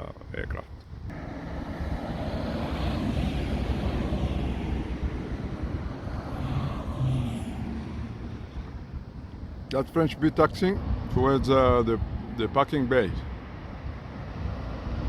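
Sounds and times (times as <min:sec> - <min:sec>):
vehicle engine rushing past: 0:01.1 - 0:09.1.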